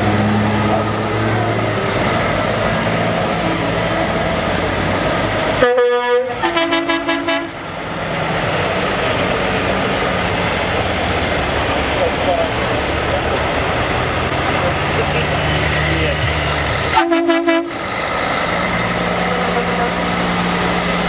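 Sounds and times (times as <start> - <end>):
heavy trucks passing: 0.0 - 21.0
truck horn blast: 5.5 - 7.6, 14.0 - 17.8, 18.8 - 21.0
truck horn quick toots: 5.6 - 7.6, 16.2 - 17.8.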